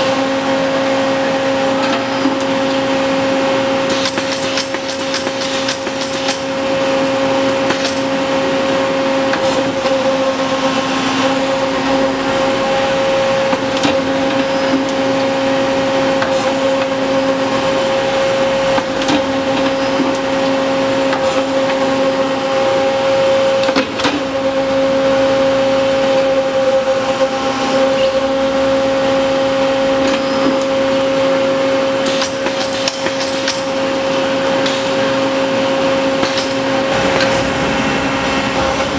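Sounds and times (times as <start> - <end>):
tube bending machine humming: 0.0 - 38.9
sharp machine clicks: 3.9 - 6.5.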